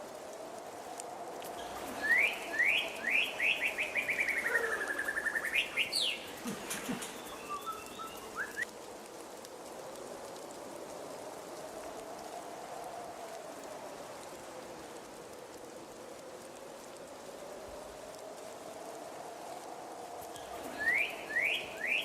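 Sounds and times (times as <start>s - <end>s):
steady background hiss: 0.0s - 22.0s
faint bird chirps: 1.6s - 8.6s, 20.7s - 22.0s
songbird trilling: 2.1s - 6.4s, 7.0s - 8.6s.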